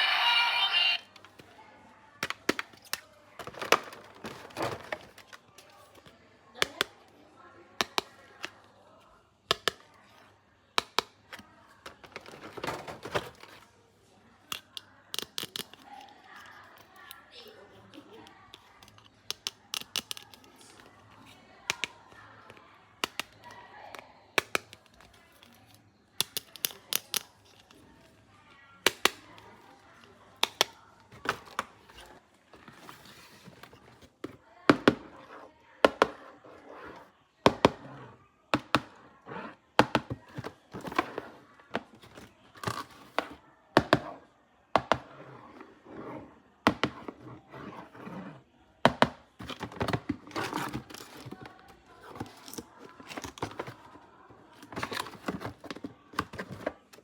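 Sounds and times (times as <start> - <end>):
plastic toys clicking and snapping: 2.2 - 6.0, 9.5 - 9.8, 14.4 - 22.0, 23.0 - 27.9, 28.8 - 31.9.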